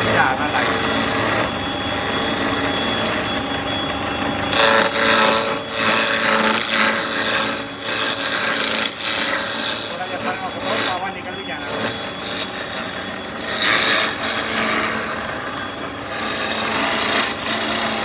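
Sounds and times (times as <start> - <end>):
bit rasping through wood: 0.0 - 18.0
router spindle whine: 0.0 - 18.0.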